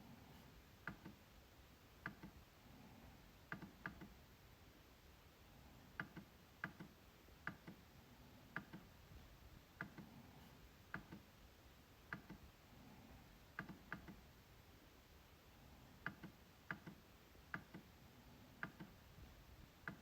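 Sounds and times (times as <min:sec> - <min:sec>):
trackpad clicks: 0:00.8 - 0:01.2, 0:02.0 - 0:02.4, 0:03.5 - 0:04.2, 0:06.0 - 0:07.8, 0:08.5 - 0:08.9, 0:10.9 - 0:11.3, 0:12.1 - 0:12.5, 0:13.5 - 0:14.2, 0:16.0 - 0:17.9, 0:18.6 - 0:19.0.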